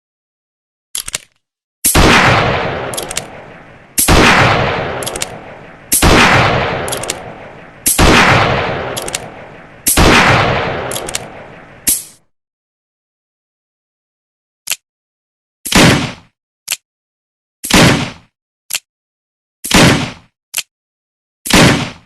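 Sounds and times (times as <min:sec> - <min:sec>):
revolver shots echoing: 0:01.9 - 0:12.1
revolver hammer cocking clicks: 0:02.7 - 0:04.2, 0:04.8 - 0:06.1, 0:06.8 - 0:08.1, 0:08.8 - 0:10.0, 0:10.6 - 0:12.2.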